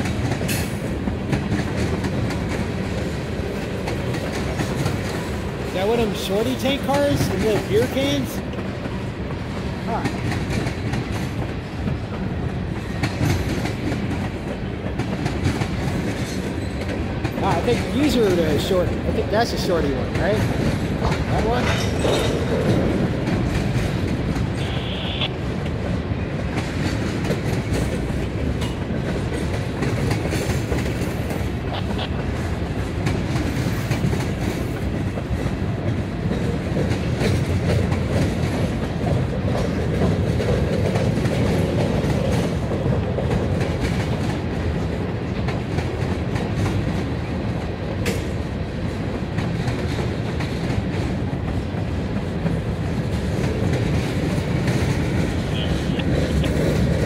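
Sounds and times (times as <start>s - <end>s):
freight train rolling past: 0.0s - 57.0s
high-pitched tone: 24.6s - 25.3s.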